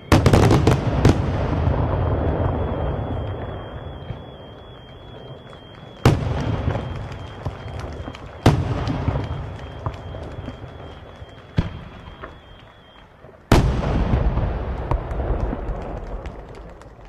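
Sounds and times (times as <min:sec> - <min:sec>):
firework crackle: 0:00.0 - 0:17.0
firework shells bursting: 0:00.0 - 0:17.0.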